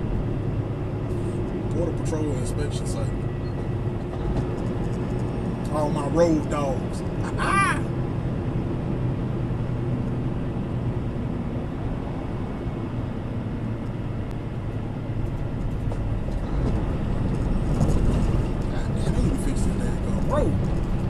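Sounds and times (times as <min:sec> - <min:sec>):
road noise inside cab: 0:00.0 - 0:21.0
truck engine drone: 0:00.0 - 0:21.0
rattles and knocks: 0:15.2 - 0:21.0.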